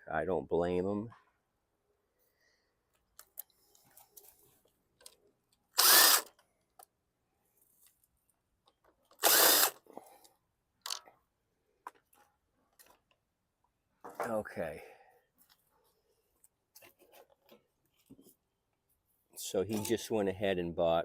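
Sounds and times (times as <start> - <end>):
power drill motor whine: 5.8 - 6.3, 9.2 - 9.8.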